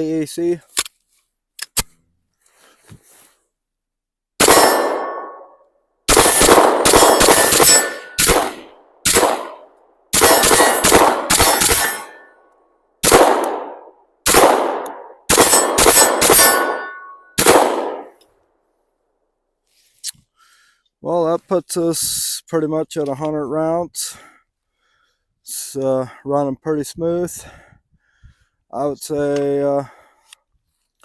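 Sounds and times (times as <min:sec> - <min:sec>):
pistol shots: 0:04.4 - 0:05.5, 0:06.1 - 0:12.2, 0:13.0 - 0:18.2.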